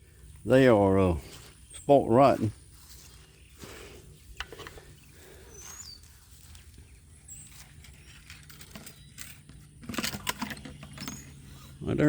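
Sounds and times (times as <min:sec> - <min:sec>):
high bird chirps: 0:02.6 - 0:08.3.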